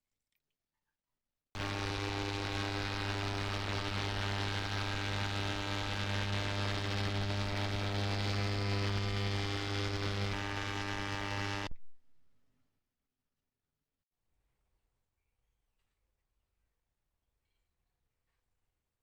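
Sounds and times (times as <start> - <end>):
electrical equipment mains hum: 1.6 - 11.7.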